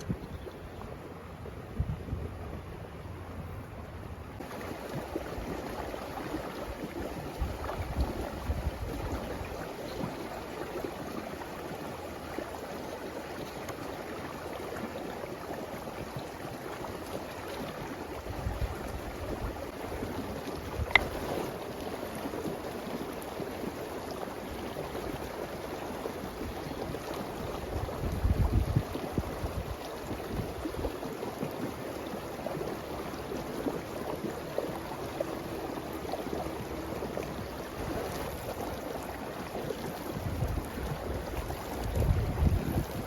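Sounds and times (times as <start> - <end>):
wind buffeting microphone: 1.4 - 2.8, 27.7 - 30.9, 40.0 - 43.0.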